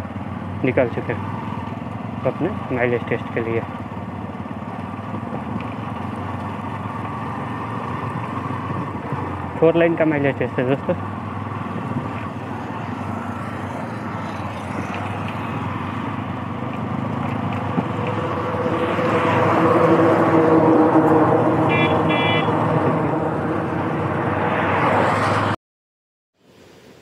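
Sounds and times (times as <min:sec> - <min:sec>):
motorcycle engine running: 0:00.0 - 0:20.6
wind and road noise: 0:00.0 - 0:25.6, 0:26.4 - 0:27.0.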